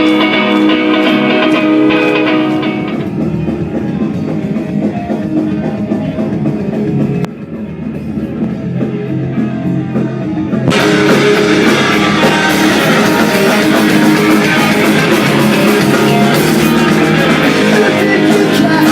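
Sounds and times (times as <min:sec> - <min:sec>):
drums and cymbals: 0:00.0 - 0:18.9
rock music with guitar: 0:00.0 - 0:18.9.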